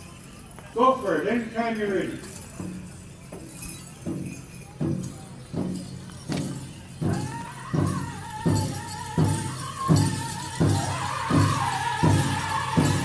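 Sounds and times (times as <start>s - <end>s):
drum struck in steady beat: 2.6s - 13.0s.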